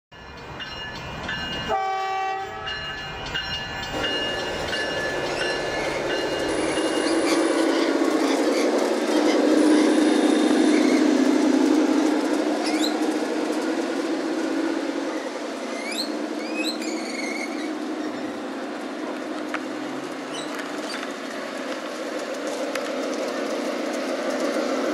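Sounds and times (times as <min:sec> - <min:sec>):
model train rumbling on track: 0:00.2 - 0:24.9
model train horn blast: 0:01.7 - 0:02.7.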